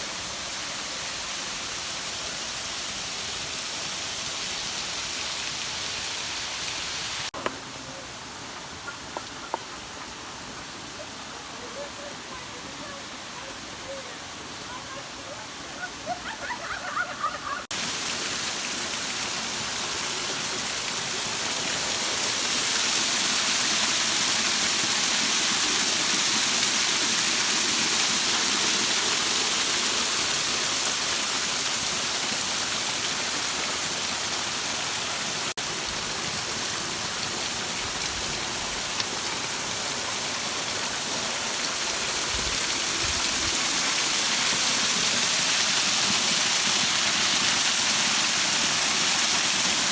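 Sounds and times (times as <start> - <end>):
waterfall rushing: 9.8 - 49.9.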